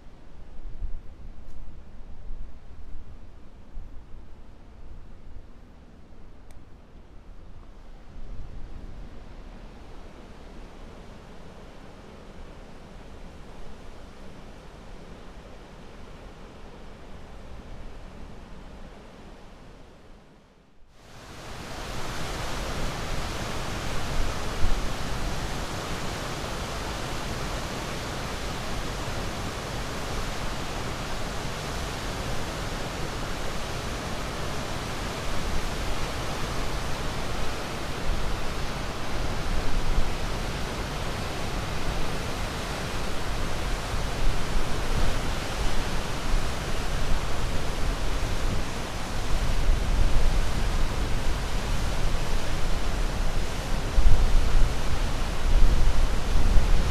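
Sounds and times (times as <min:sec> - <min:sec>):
ocean waves washing onto shore: 0:21.0 - 0:56.9.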